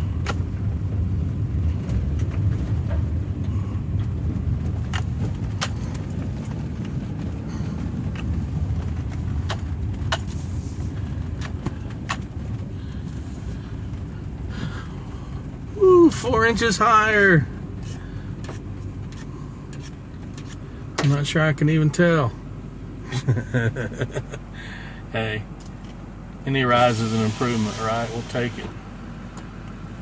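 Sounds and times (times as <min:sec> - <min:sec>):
truck engine and tyres rumbling: 0:00.0 - 0:30.0
light clicks and rattles: 0:01.7 - 0:14.5.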